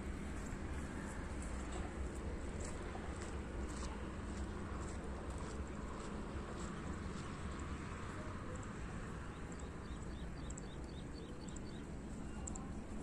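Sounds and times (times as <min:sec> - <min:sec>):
bird chirping: 0:09.3 - 0:12.6.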